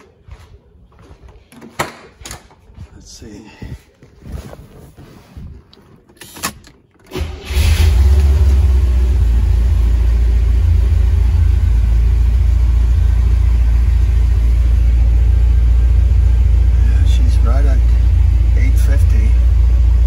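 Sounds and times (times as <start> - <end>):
car engine starting and idling: 6.0 - 20.0.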